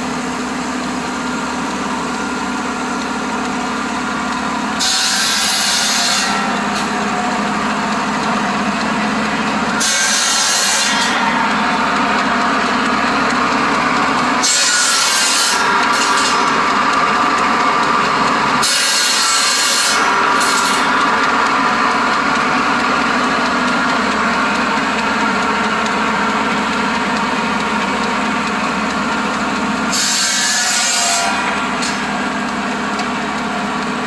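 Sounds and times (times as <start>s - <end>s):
buzz saw blade running: 0.0s - 34.0s
saw rasping through board: 0.8s - 34.0s.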